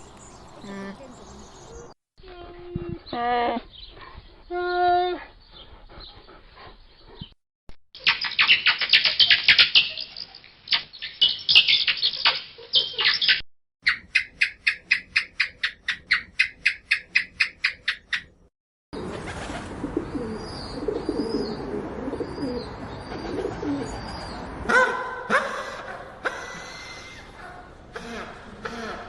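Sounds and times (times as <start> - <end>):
animal chirping and chattering: 8.0 - 18.4.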